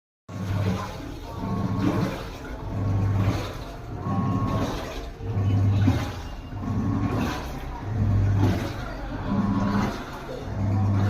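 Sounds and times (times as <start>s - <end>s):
washing machine motor humming: 0.3s - 11.0s
water churning and sloshing: 0.3s - 11.0s.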